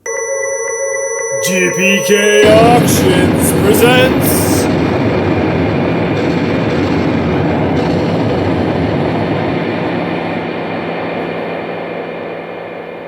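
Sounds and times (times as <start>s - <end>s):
loud low rumbling: 2.4s - 12.0s.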